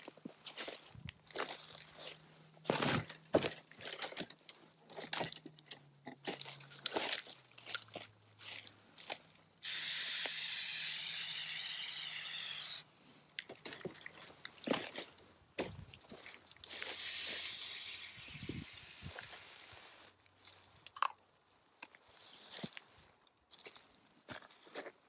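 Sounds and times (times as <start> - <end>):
clicks and crinkling handling: 0.1 - 9.5, 13.3 - 16.9, 20.4 - 25.0
aerosol can spraying: 9.6 - 12.8, 16.8 - 19.6.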